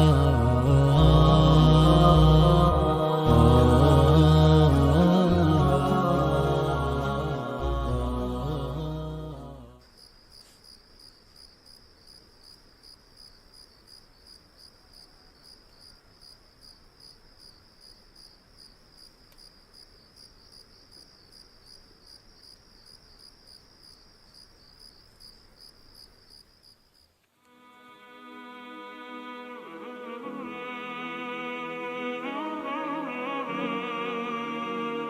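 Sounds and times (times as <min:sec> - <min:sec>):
cricket chirping: 0:09.8 - 0:27.3.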